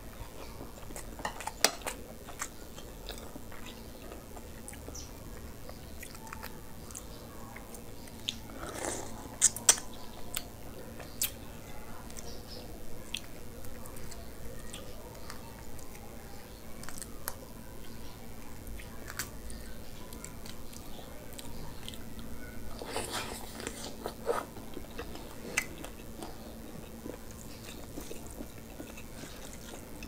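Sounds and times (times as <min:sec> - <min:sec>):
wet chewing: 0:18.6 - 0:30.0
biting clicks and crunches: 0:20.1 - 0:30.0.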